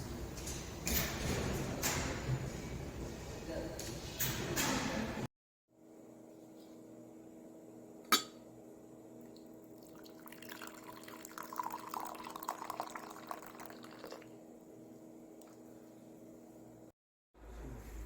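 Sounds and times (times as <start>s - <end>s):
liquid pouring into a glass: 9.3s - 14.4s.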